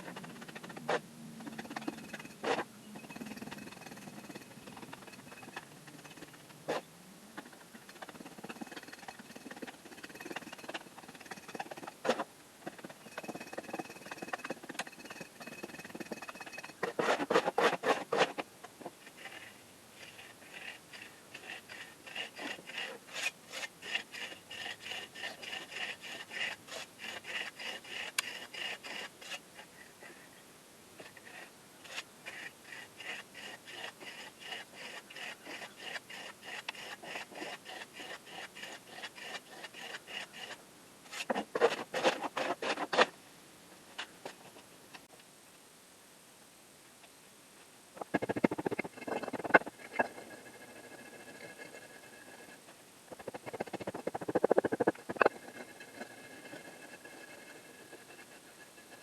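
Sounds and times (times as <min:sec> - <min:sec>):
rasping scraping strokes: 0:00.0 - 0:18.4, 0:19.0 - 0:30.2, 0:31.0 - 0:43.1, 0:48.0 - 0:59.0.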